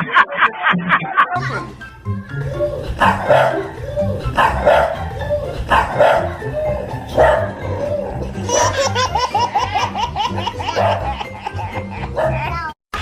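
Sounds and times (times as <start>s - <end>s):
background music: 0.0s - 13.0s
dog barking: 3.0s - 3.8s, 4.4s - 5.1s, 5.7s - 7.9s, 10.7s - 11.1s, 12.1s - 12.5s.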